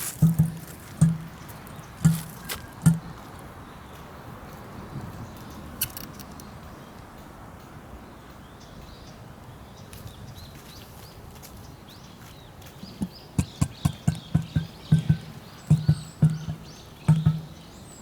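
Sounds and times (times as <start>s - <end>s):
faint outdoor background: 0.0s - 18.0s
small birds chirping faintly: 0.0s - 18.0s
emu deep thumping calls: 0.2s - 3.2s, 13.0s - 17.6s.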